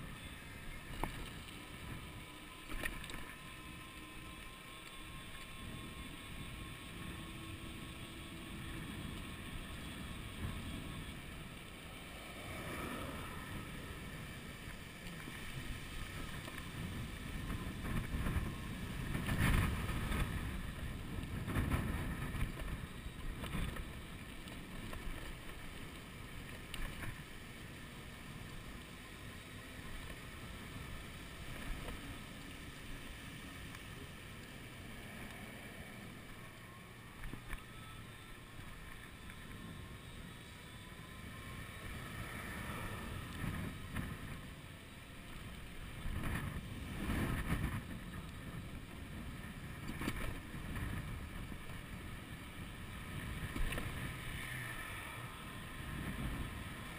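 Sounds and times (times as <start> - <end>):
wind buffeting microphone: 5.1 - 25.7, 38.8 - 44.7, 45.6 - 56.9.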